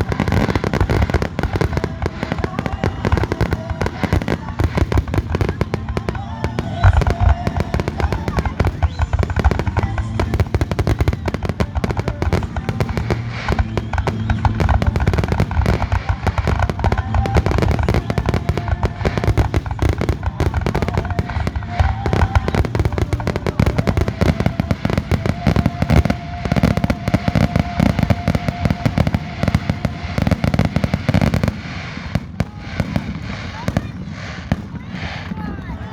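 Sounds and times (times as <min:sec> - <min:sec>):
firework bursts and crackling: 0:00.0 - 0:35.9
music playing: 0:00.0 - 0:35.9.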